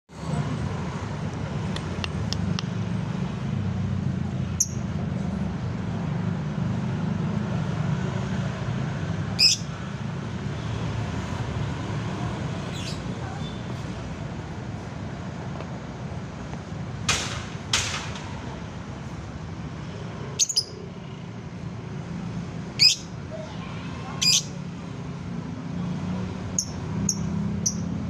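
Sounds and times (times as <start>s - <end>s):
bird chirping: 9.4s - 9.7s, 20.4s - 21.2s, 22.8s - 23.1s
bird squawk: 9.4s - 9.7s, 22.8s - 24.6s.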